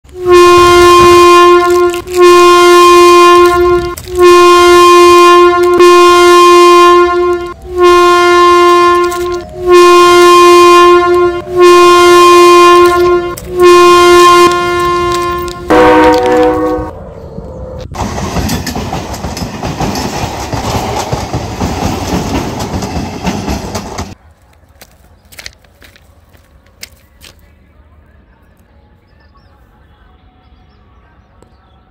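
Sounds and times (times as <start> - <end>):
train horn blasts: 0.1 - 17.0
passing train rushing: 0.1 - 24.7.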